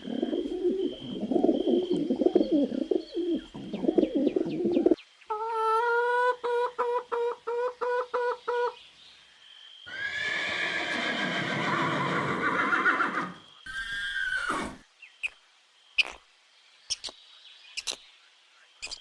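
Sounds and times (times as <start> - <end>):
horse whinnying: 9.9 - 14.8.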